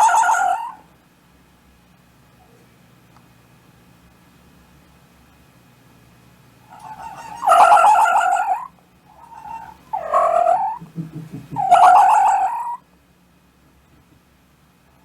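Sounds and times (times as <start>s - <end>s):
animal calling with wavering pitch: 0.0s - 0.9s, 6.7s - 12.8s.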